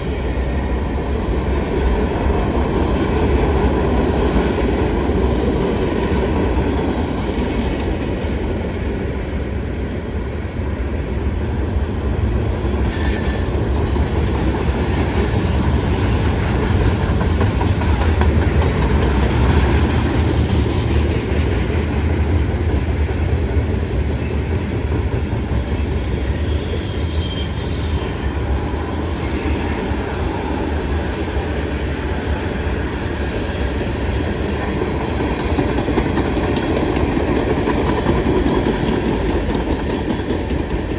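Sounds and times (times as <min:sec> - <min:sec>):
train wheels rumbling on rail: 0:00.0 - 0:40.9
wheel squeals: 0:12.9 - 0:13.8, 0:24.2 - 0:32.0.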